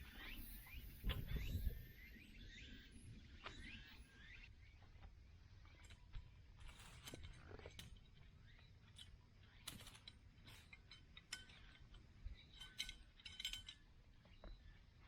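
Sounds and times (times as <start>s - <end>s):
short metallic clinks: 9.7s - 13.9s.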